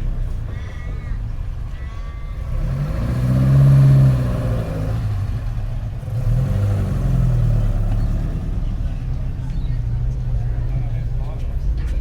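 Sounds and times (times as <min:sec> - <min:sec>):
car engine revving: 0:02.4 - 0:09.4.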